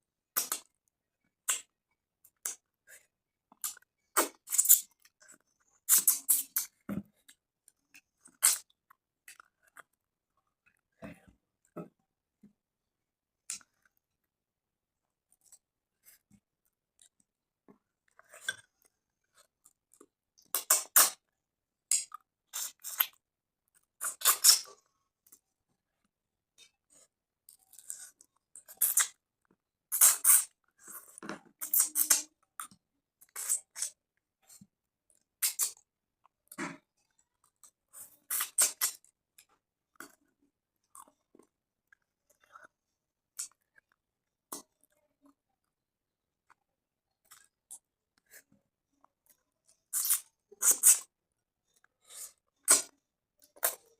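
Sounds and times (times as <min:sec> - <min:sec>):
wet chewing and mouth smacks: 0:01.4 - 0:02.7, 0:03.5 - 0:10.8, 0:21.9 - 0:25.4, 0:27.5 - 0:40.3, 0:43.4 - 0:45.4, 0:47.2 - 0:48.4, 0:49.2 - 0:51.1, 0:51.7 - 0:53.9.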